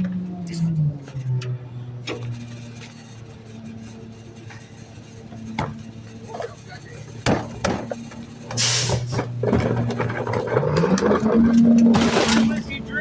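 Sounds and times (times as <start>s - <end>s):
trash knocking into hopper: 11.6s - 12.9s.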